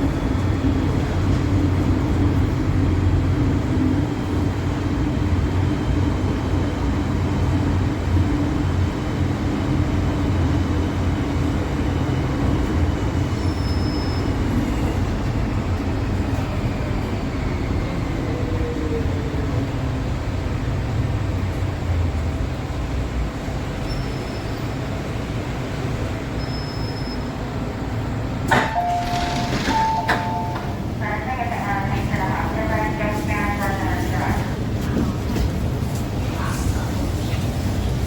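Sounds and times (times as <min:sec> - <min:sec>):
metro train rumbling on track: 0:00.0 - 0:38.0
sharp clunk: 0:28.5 - 0:30.7.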